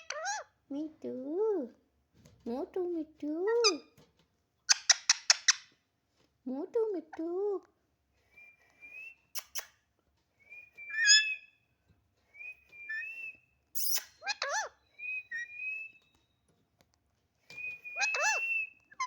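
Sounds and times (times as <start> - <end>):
parrot whistling: 10.6 - 11.5, 17.6 - 19.0.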